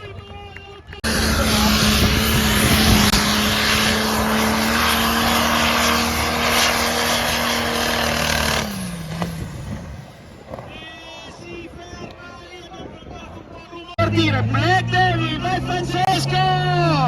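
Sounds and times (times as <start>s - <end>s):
tractor engine at high revs: 0.9s - 10.7s, 14.0s - 17.0s.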